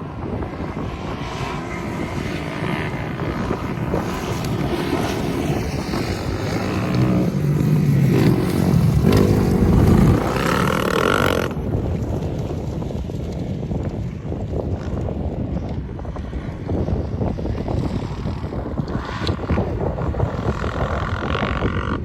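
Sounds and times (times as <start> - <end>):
motocross bike engine revving: 1.6 - 11.8.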